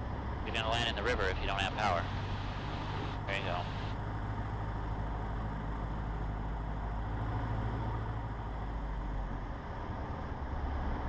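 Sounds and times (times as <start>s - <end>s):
aircraft engine and propeller droning: 0.0s - 7.0s.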